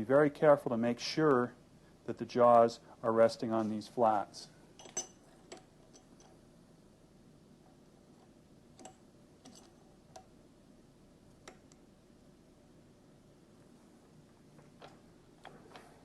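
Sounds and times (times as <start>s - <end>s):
metal tools clicking and tapping: 4.8s - 6.4s, 8.8s - 10.3s.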